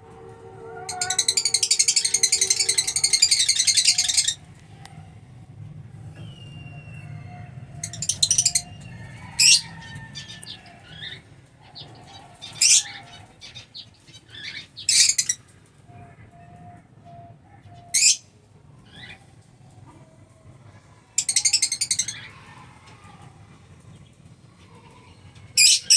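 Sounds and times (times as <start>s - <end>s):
lovebirds shrill calls: 0.9s - 4.4s, 7.8s - 11.2s, 11.8s - 15.5s, 18.0s - 18.2s, 21.2s - 22.3s, 25.6s - 25.9s.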